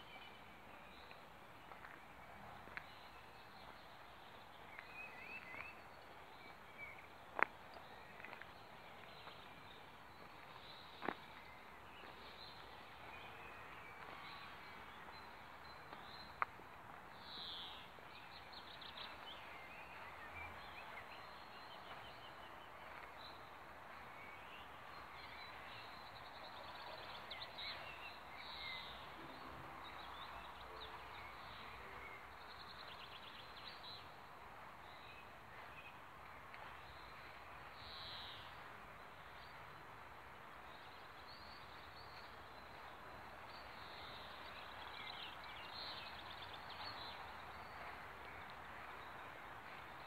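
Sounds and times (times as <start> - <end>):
small birds chirping: 0.0 - 34.2.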